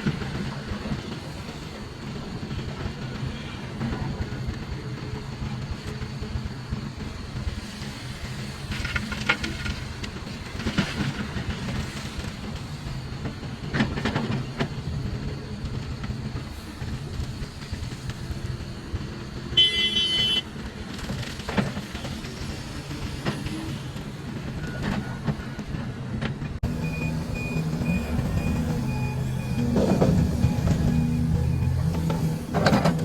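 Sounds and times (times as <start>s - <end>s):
diesel engine running: 26.6s - 33.0s.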